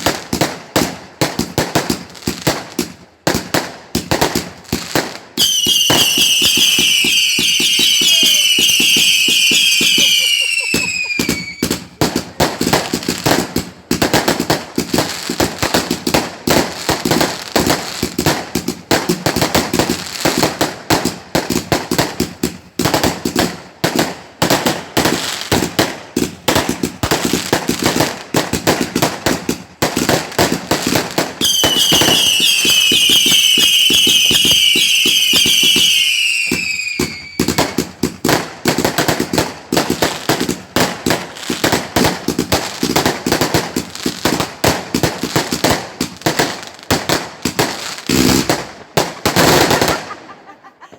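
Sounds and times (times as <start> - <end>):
fireworks crackling bangs: 0.0 - 50.4
fireworks whistling: 5.4 - 13.4, 30.9 - 39.3, 47.5 - 50.4.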